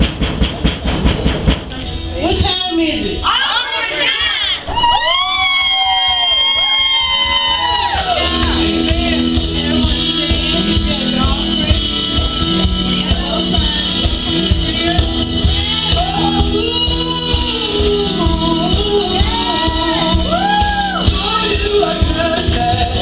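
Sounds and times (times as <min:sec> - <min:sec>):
voices singing: 0:06.3 - 0:23.0
band playing sustained chords: 0:07.3 - 0:23.0.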